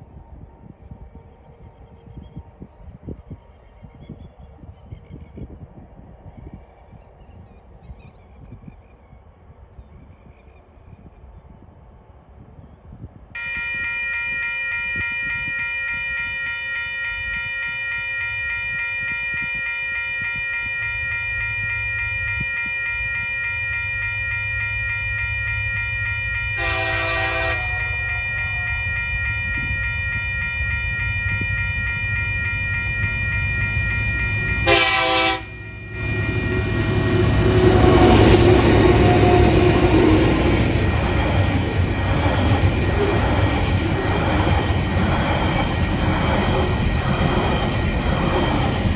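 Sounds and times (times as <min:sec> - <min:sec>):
level crossing warning bell: 0:13.4 - 0:48.9
train passing over crossing: 0:13.4 - 0:48.9
diesel train engine rumble: 0:20.8 - 0:48.9
train horn blasts: 0:26.5 - 0:29.0, 0:33.6 - 0:40.5.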